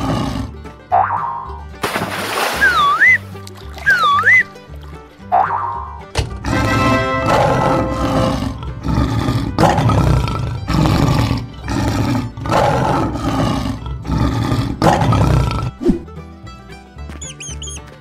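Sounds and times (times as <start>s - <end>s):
lion roaring: 0.0s - 0.6s, 6.4s - 16.0s.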